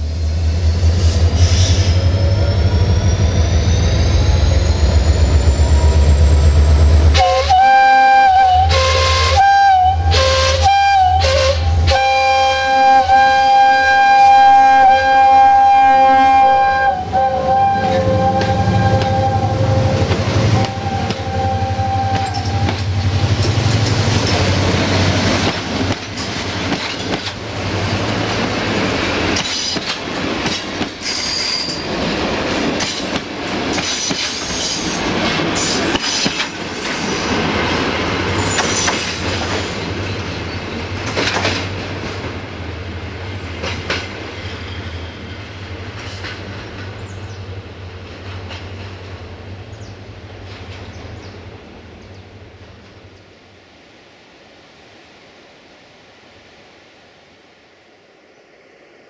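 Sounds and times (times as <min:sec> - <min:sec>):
multi-tone train horn blasts: 0:07.1 - 0:23.6
locomotive engine running: 0:17.2 - 0:30.6
wheels clattering on rails: 0:22.1 - 0:42.4, 0:43.4 - 0:44.8, 0:45.8 - 0:47.2, 0:48.0 - 0:49.2.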